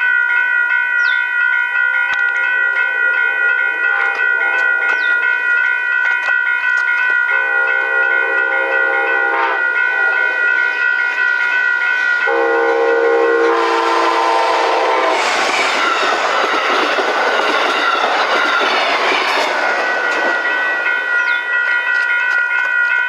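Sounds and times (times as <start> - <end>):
wheels clacking on rails: 1.0 - 23.0
train air horn chord: 2.8 - 5.4, 7.3 - 11.0, 12.2 - 15.4
train rushing past: 7.3 - 22.3.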